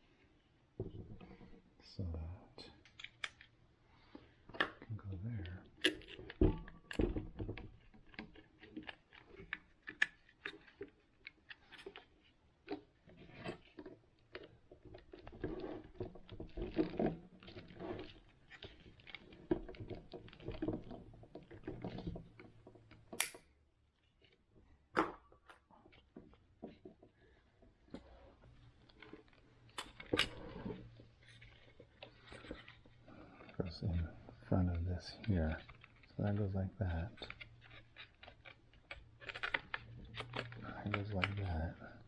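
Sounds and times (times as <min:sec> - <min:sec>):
plastic parts clicking: 0:37.0 - 0:42.0.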